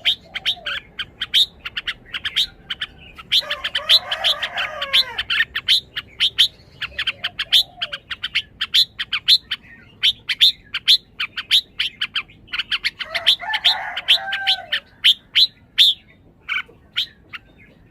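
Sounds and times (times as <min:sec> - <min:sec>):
bird sharp chirps: 0:00.0 - 0:04.3
bird lower warbling phrases: 0:00.0 - 0:17.9.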